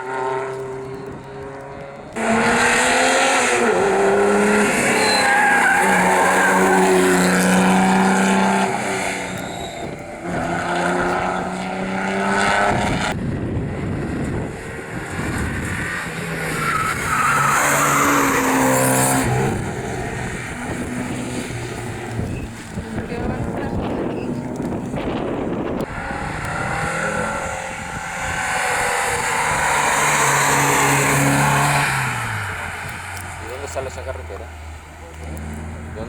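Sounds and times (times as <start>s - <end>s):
car engine revving through gears: 0.0s - 36.0s
rally car engine at high revs: 0.0s - 36.0s
tyre squeal: 3.6s - 11.6s, 16.1s - 23.0s.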